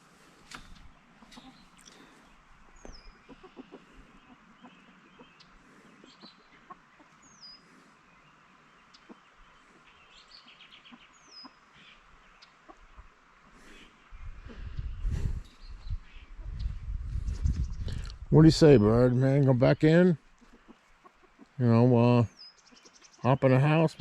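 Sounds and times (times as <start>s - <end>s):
chickens clucking: 0.0s - 8.1s, 8.8s - 21.9s.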